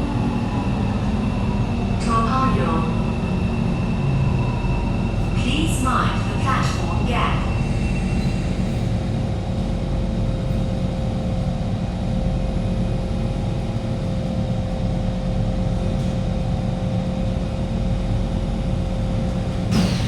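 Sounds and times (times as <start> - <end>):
train car rumble: 0.0 - 20.0
train wheels squealing: 6.6 - 9.0.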